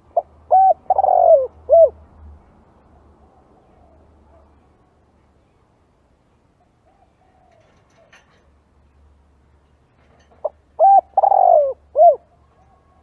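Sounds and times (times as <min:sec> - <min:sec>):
dove cooing: 0:00.0 - 0:02.0, 0:10.4 - 0:13.0.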